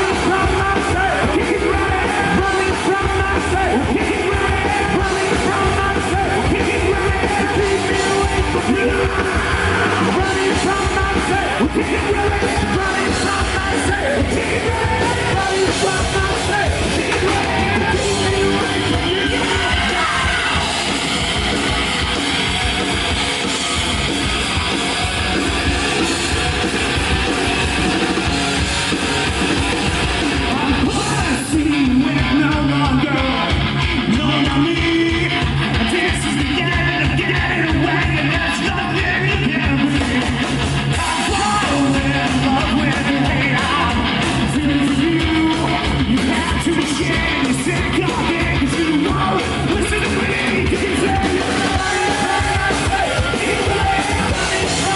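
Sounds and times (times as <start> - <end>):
person yelling vocals: 0.0 - 20.7
live rock band playing: 0.0 - 54.9.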